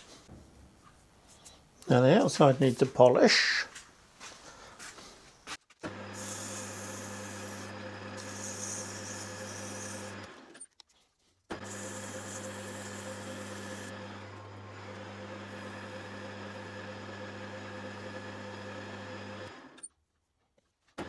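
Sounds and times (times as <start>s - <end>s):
lathe motor hum: 5.9s - 10.5s, 11.6s - 19.7s.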